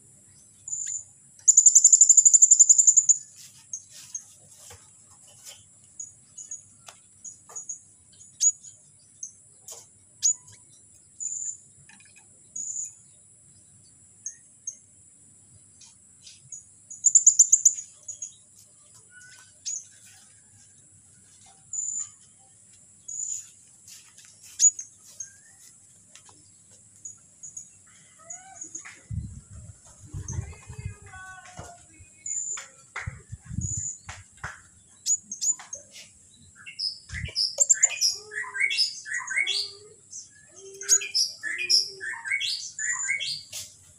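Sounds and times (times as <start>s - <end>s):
bird chirping and trilling: 0.7s - 4.1s, 16.9s - 19.9s, 36.6s - 43.7s.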